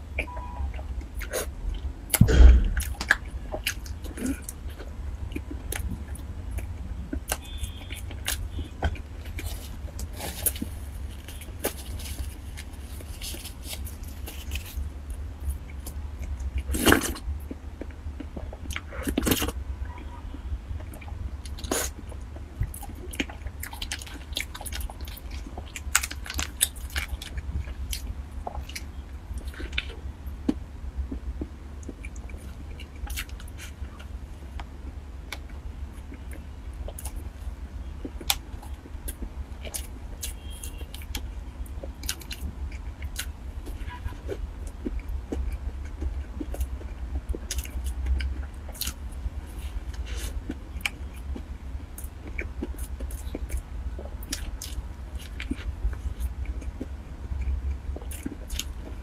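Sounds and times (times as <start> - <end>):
steady low hum: 0.0 - 59.0
chewing and mouth smacks: 0.2 - 20.1, 20.8 - 34.7, 35.3 - 59.0
plastic wrapper rustling: 9.5 - 14.8.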